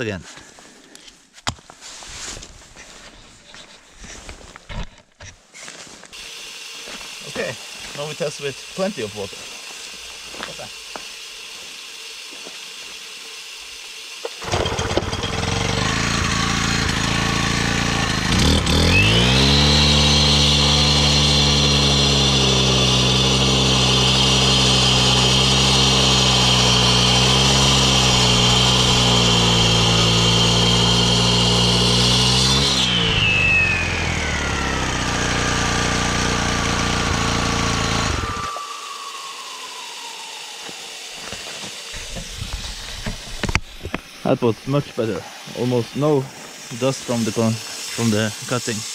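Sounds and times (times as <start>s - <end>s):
concrete saw whining: 6.1s - 48.9s.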